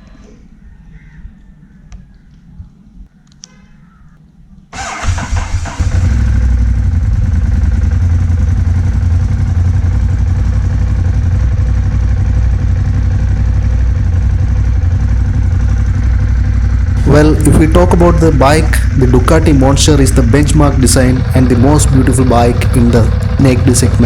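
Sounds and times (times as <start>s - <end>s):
electric starter cranking: 4.8s - 6.3s
motorcycle engine idling: 4.8s - 24.0s.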